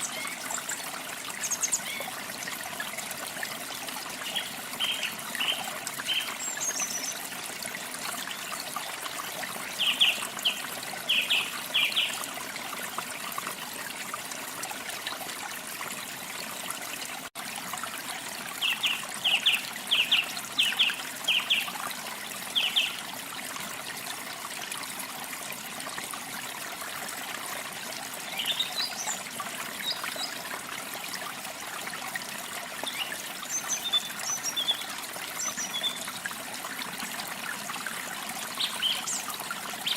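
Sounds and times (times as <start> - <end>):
water trickling: 0.0 - 39.9
small birds chirping: 38.5 - 39.9.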